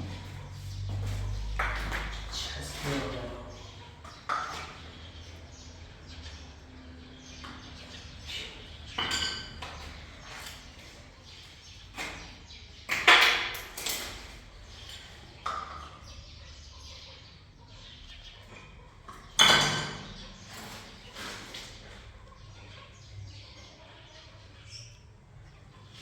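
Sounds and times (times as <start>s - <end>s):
objects clinking and knocking: 8.9s - 10.0s, 19.1s - 21.3s.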